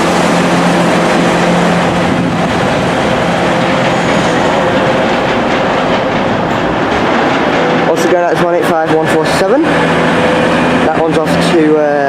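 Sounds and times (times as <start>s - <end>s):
steady hum: 0.0s - 12.0s
train wheels rumbling on rails: 0.0s - 12.0s.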